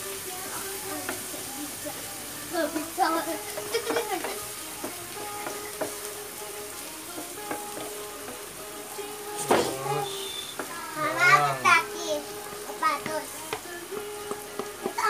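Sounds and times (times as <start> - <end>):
omelette sizzling in a frying pan: 0.0 - 15.0
wooden spatula scraping a pan: 2.7 - 6.0.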